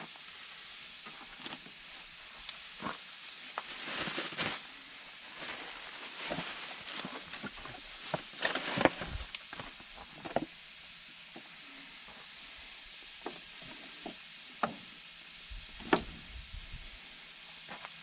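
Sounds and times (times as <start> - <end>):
food sizzling in a pan: 0.0 - 18.0
utensil scraping in a pan: 0.2 - 10.5.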